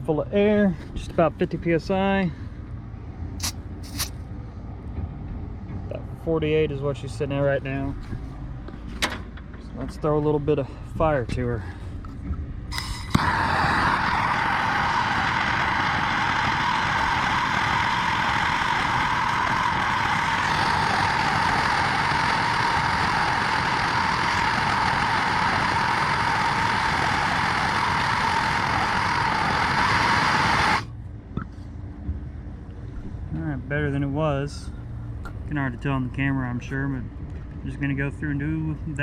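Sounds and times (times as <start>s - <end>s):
gas torch roaring: 3.4s - 4.2s, 12.7s - 31.0s.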